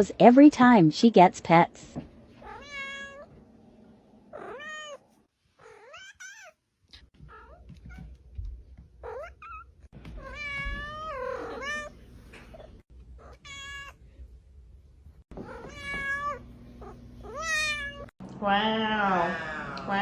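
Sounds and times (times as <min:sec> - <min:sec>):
cat meowing: 0:02.4 - 0:03.3, 0:04.3 - 0:05.0, 0:09.0 - 0:12.0, 0:13.2 - 0:14.0, 0:15.4 - 0:18.1.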